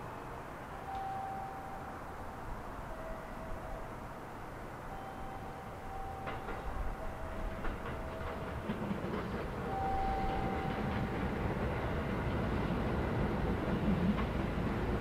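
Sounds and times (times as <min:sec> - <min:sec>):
thin steady tone: 0:00.0 - 0:08.8
electric train rumble: 0:00.0 - 0:15.0
wheels clicking over rail joints: 0:04.5 - 0:15.0.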